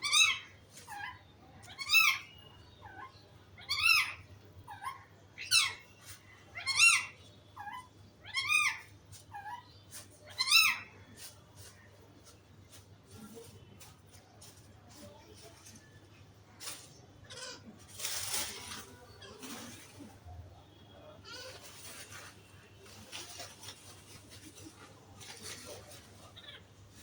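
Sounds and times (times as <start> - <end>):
parrot squawking: 0.0 - 9.7, 10.3 - 10.9.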